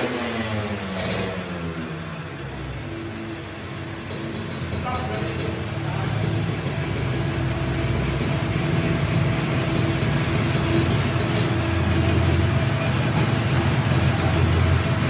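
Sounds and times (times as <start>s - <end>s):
two-stroke motorcycle engine running: 0.0s - 15.0s.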